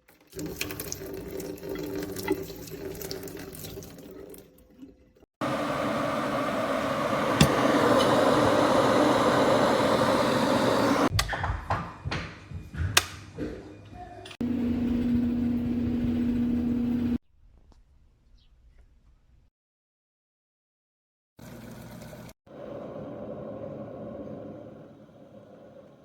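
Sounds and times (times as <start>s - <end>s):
water pouring: 0.0s - 5.3s.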